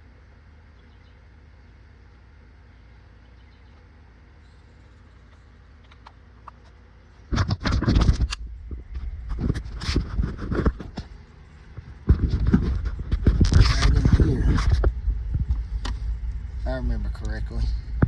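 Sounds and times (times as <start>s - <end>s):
heavy low rumble: 7.2s - 18.0s.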